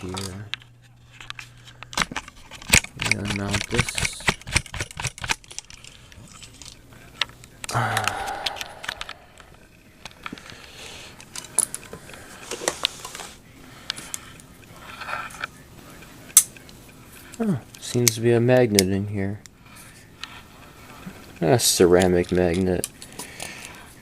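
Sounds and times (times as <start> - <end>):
plastic parts clicking and scraping: 0.0 - 15.5.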